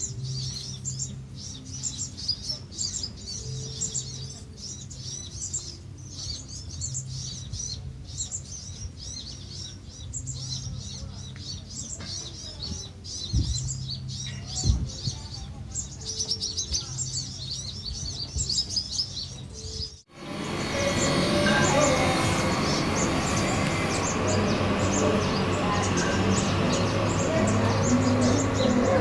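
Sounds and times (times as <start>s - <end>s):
birds twittering: 0.0s - 29.0s
loud noisy sound: 20.1s - 29.0s.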